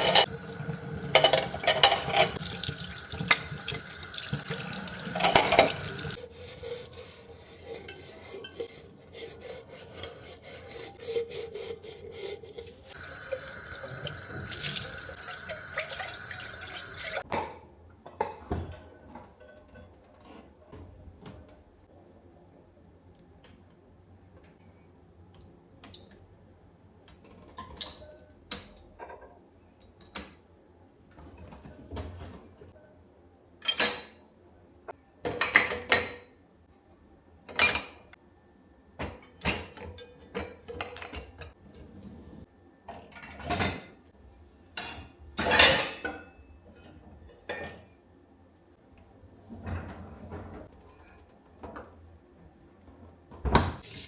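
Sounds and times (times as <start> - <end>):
dishes and cutlery clinking: 0.0 - 0.3, 1.0 - 2.5, 4.4 - 7.0, 39.1 - 41.6.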